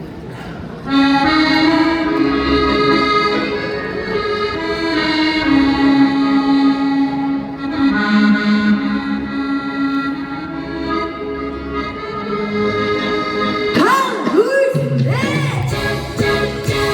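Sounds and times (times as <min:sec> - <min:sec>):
accordion melody: 0:00.8 - 0:14.4, 0:15.7 - 0:16.9
trot backing track: 0:10.5 - 0:16.9.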